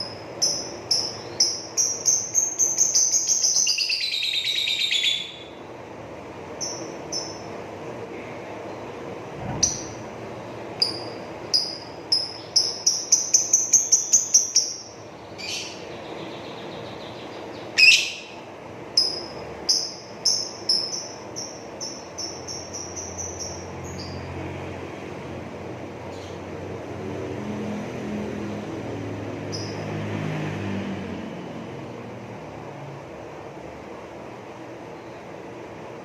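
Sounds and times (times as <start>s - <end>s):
lovebird chattering chirps: 0.0s - 5.6s, 6.6s - 7.5s, 9.4s - 24.3s, 29.5s - 29.8s.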